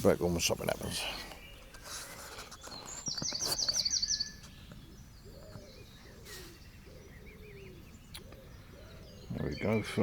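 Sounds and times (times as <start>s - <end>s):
faint bird twitter: 0.2s - 10.0s
songbird trilling: 2.6s - 10.0s
pigeon cooing: 5.2s - 9.3s.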